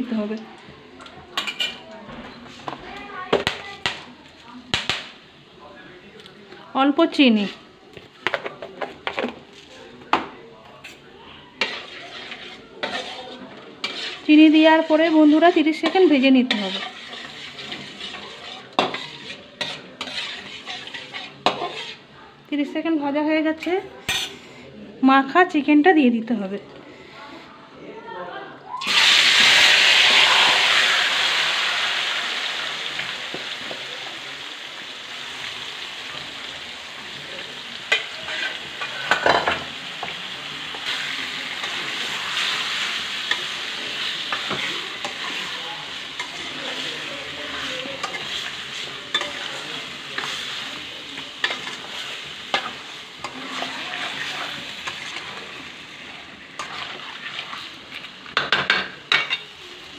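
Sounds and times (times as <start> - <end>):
chicken sizzling in a pan: 0.1 - 5.6, 10.8 - 22.1, 28.8 - 59.9
spatula scraping and knocking pan: 8.2 - 11.0, 11.6 - 22.0, 37.9 - 55.4.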